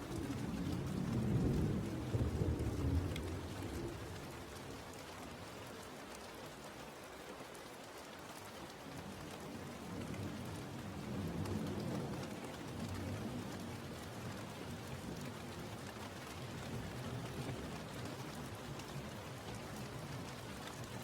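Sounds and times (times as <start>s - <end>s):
steady rain falling: 0.0s - 21.0s
distant thunder rumble: 0.1s - 4.6s.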